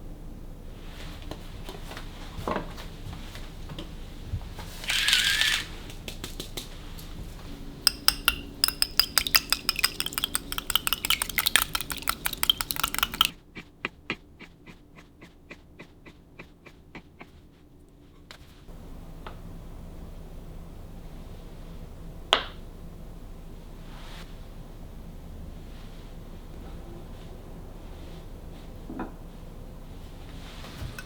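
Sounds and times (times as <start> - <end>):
light taps: 7.9 - 13.3
quick ringing clicks and clinks: 7.9 - 13.3.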